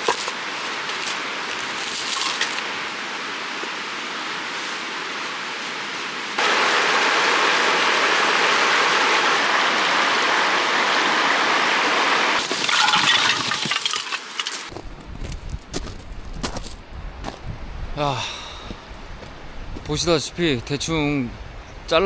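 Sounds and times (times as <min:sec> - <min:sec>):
creek water rushing: 0:00.0 - 0:14.7.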